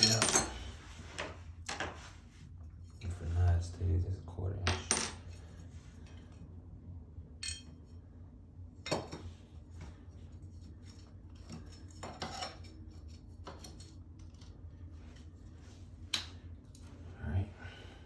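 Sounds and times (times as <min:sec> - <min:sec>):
metal hardware clinking: 0:00.0 - 0:00.6, 0:07.4 - 0:07.8
steady low hum: 0:00.0 - 0:18.0.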